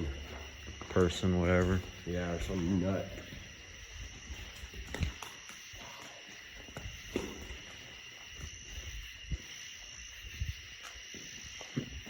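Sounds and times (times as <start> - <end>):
footsteps walking: 0.0 - 12.0.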